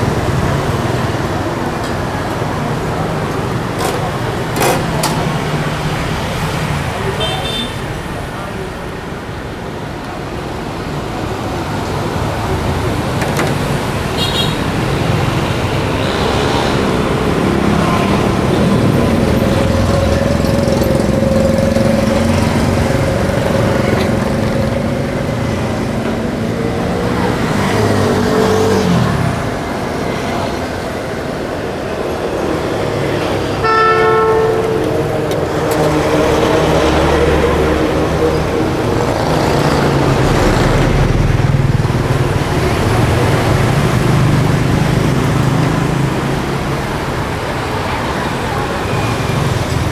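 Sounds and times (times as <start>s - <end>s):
street traffic: 0.0s - 49.9s
car horn beep: 7.2s - 7.9s, 14.2s - 14.7s, 33.6s - 35.4s.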